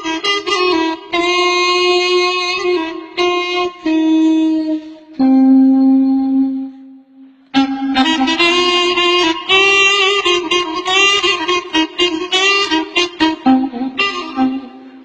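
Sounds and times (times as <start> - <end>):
reedy wind instrument notes: 0.0 - 15.0.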